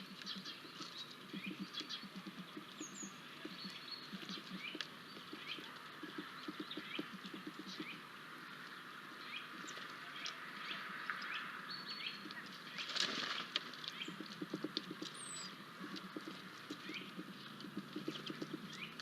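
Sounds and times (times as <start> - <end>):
small birds chirping: 0.0 - 19.0
wing flaps: 12.8 - 15.2.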